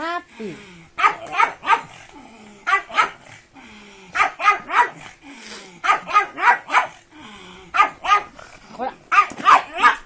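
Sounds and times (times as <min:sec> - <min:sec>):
dog yapping barks: 0:01.0 - 0:02.0, 0:02.7 - 0:03.2, 0:04.2 - 0:05.0, 0:05.8 - 0:07.0, 0:07.8 - 0:08.3, 0:09.1 - 0:10.0.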